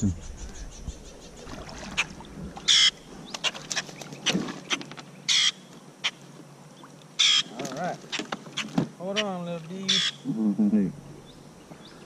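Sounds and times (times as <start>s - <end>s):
bird squawking: 1.9s - 3.9s, 5.3s - 6.2s, 7.2s - 10.4s.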